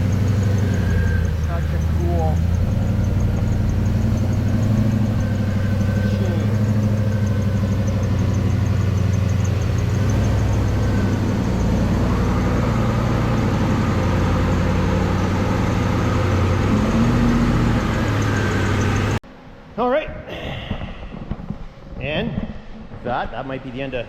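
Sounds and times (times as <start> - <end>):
car engine idling: 0.0 - 19.2.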